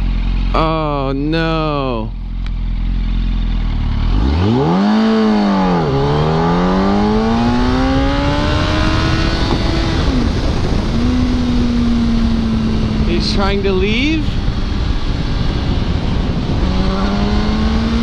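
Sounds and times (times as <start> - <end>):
motorcycle engine revving: 0.0 - 18.0
wind noise: 4.6 - 18.0.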